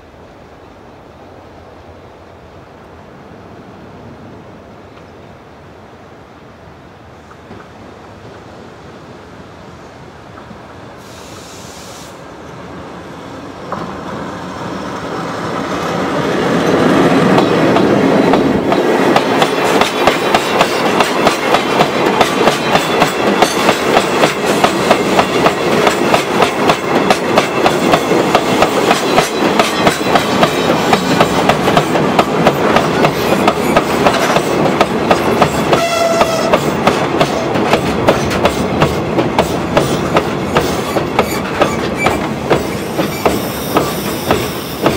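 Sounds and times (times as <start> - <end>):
freight train passing: 0.0 - 44.9
wheels clickety-clack on rail joints: 13.6 - 44.9.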